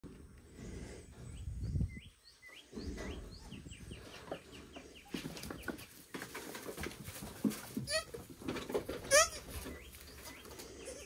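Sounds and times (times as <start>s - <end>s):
bird chirping: 0.8s - 6.4s, 9.1s - 11.0s
rustling and bumping: 5.1s - 10.6s.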